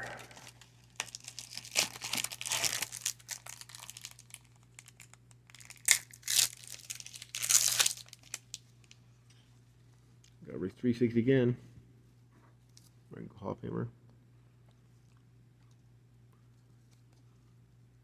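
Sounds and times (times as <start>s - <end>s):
card pack wrapper crinkling: 0.0s - 8.6s.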